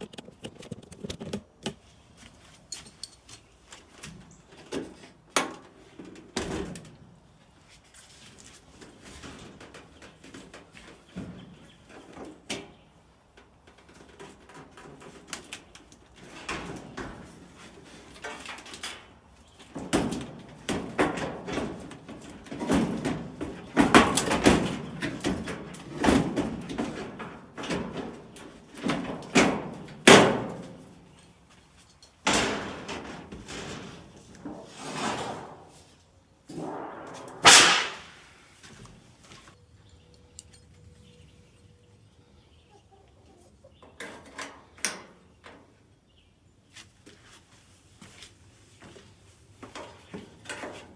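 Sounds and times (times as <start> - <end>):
sheet metal clunks and scrapes: 32.3 - 35.9, 36.5 - 38.3.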